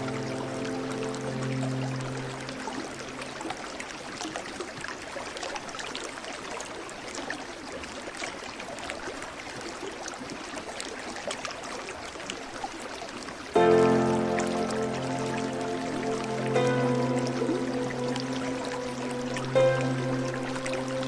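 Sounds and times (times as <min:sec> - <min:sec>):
stream trickling and splashing: 0:00.0 - 0:21.0.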